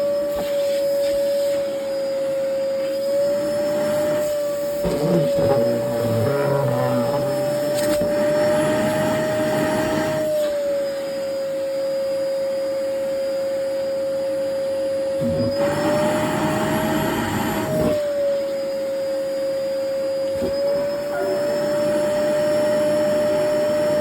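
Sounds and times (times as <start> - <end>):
vacuum cleaner motor whine: 0.0 - 24.0.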